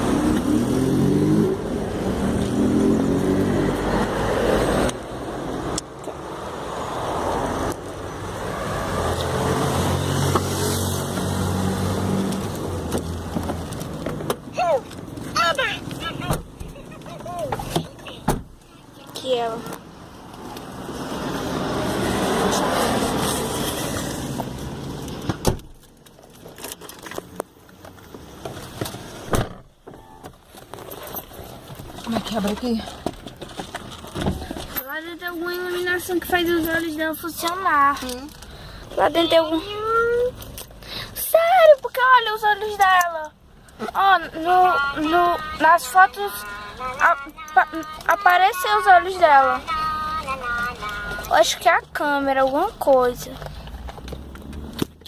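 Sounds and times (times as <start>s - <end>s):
car engine driving off: 0.0s - 5.8s, 52.3s - 55.0s
outdoor traffic noise: 0.0s - 55.0s
car door shutting: 17.4s - 18.6s, 25.2s - 25.8s, 28.8s - 30.4s.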